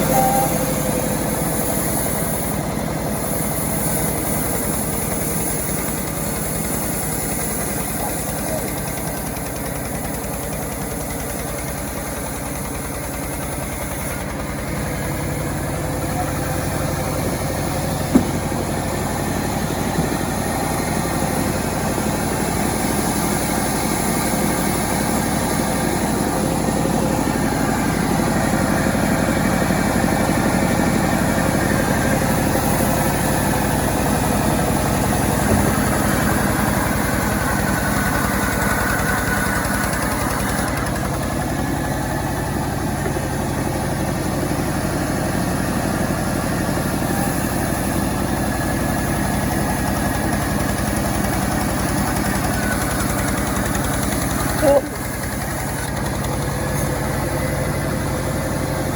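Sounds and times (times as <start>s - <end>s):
chainsaw engine running: 0.0s - 58.9s
sharp knock: 18.1s - 18.6s.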